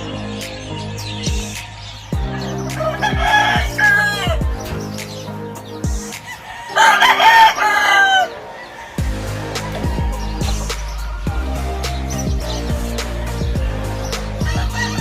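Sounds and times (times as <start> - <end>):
background music with bass and beat: 0.0 - 7.5, 9.0 - 15.0
rooster crowing: 1.8 - 4.5, 6.2 - 12.6, 14.4 - 15.0.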